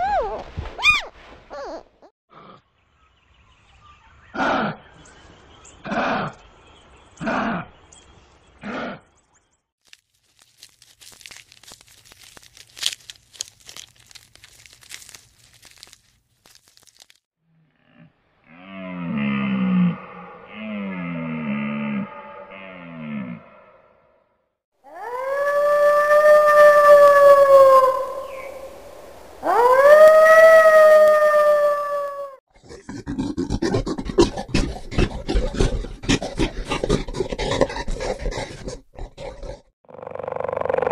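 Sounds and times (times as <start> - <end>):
crinkling and crunching: 9.8 - 17.3
animal howling: 24.8 - 32.4.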